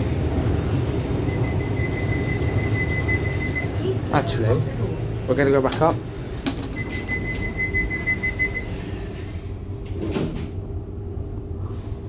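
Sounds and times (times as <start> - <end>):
low hum of lift: 0.0 - 12.0
high warning beep: 1.2 - 3.9, 6.7 - 8.8.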